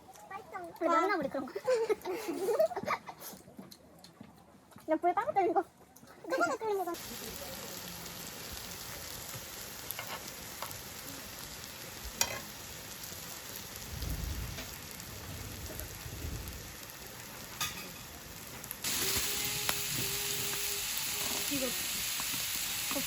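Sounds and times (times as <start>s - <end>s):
food sizzling: 6.4s - 23.0s.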